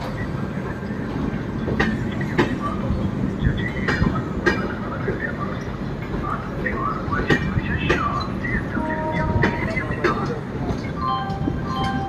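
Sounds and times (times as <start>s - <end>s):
train wheels rumbling on rail: 0.0s - 12.0s
wheels clicking over rail joints: 0.0s - 12.0s.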